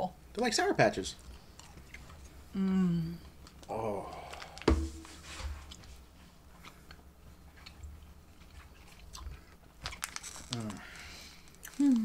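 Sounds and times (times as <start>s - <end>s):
person chewing gummy candies: 1.2s - 4.6s, 6.6s - 12.0s
person humming: 2.6s - 4.3s.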